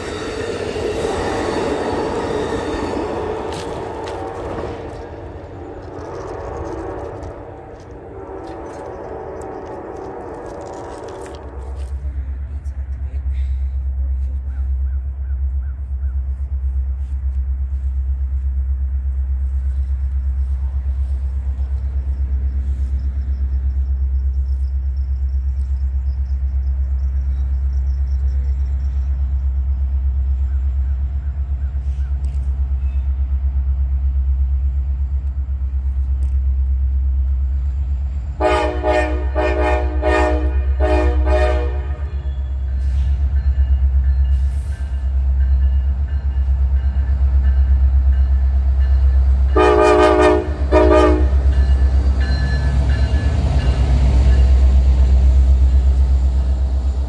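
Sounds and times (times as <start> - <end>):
diesel locomotives rumbling: 0.0 - 57.0
train horn short blasts: 38.4 - 43.1, 49.5 - 51.8.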